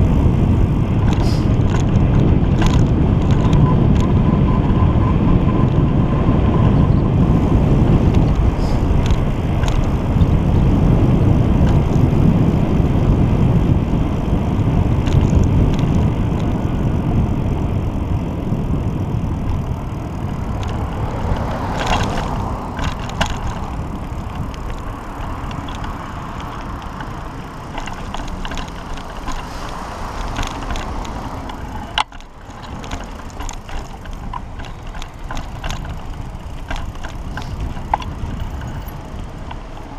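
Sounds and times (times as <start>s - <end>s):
tyre and road noise: 0.0s - 39.9s
wind rushing over microphone: 0.0s - 39.9s
clicks and rattles: 1.0s - 4.1s, 8.0s - 10.4s, 20.2s - 39.9s.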